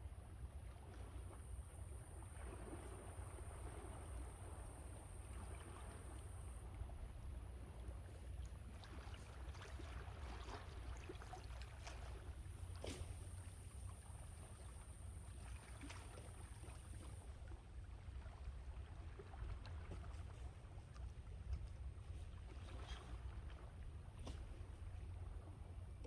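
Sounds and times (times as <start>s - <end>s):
water crackles: 5.3s - 26.0s.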